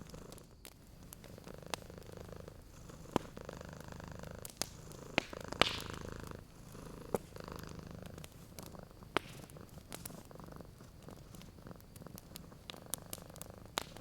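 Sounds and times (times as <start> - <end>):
cat purring: 0.0 - 14.0
fireplace fire popping: 0.0 - 14.0.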